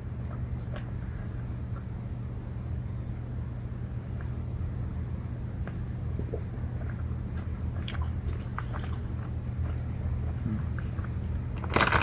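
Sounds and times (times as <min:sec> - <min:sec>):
low hum: 0:00.0 - 0:12.0
person chewing gummy candies: 0:05.7 - 0:12.0
plastic bag crinkling: 0:11.6 - 0:12.0.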